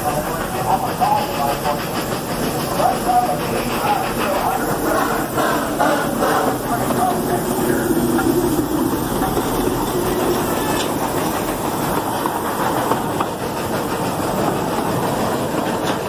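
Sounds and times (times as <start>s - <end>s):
steam train rumbling past: 0.0s - 16.0s
wheels clattering over rails: 8.0s - 16.0s.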